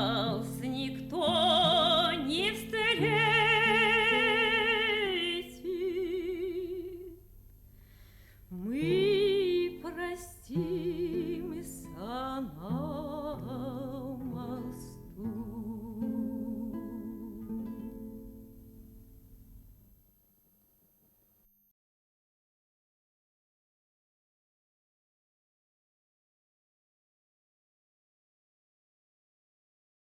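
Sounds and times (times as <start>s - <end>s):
woman singing with vibrato: 0.0s - 7.2s, 8.5s - 17.8s
acoustic guitar: 0.0s - 20.0s.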